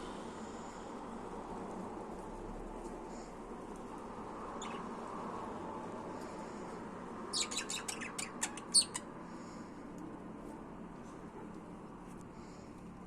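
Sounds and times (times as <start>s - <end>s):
budgerigar chirping: 4.6s - 4.9s, 7.3s - 9.0s.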